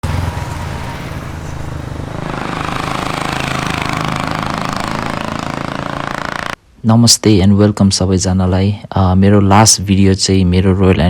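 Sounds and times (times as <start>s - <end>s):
motorcycle engine running: 0.0s - 6.6s.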